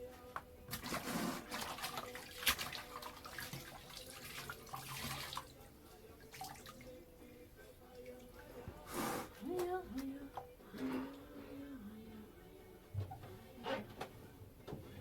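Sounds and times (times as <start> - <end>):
water running and splashing: 1.4 - 5.5.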